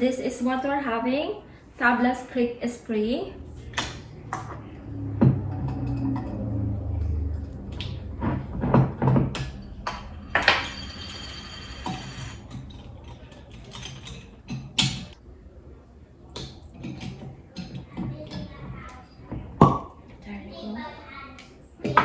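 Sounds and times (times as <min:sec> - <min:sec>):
glass and bottle clinks: 0:09.4 - 0:15.0.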